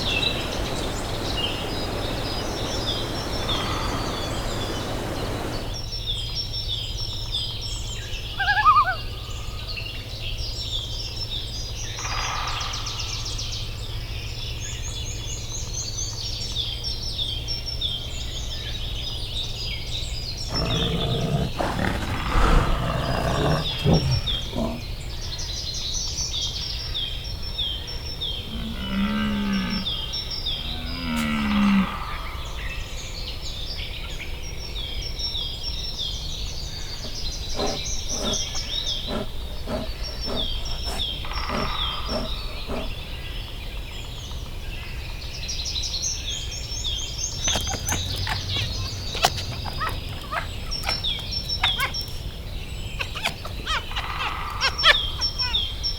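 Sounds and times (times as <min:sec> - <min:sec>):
low moo-like animal calls: 0:00.0 - 0:05.8, 0:20.5 - 0:25.0, 0:28.4 - 0:32.4, 0:37.0 - 0:43.0
bird chirping: 0:00.0 - 0:13.6, 0:14.7 - 0:55.9.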